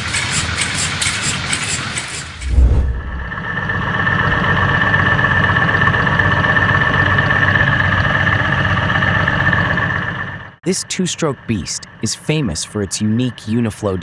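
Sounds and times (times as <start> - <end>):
high whine: 2.4 - 7.8.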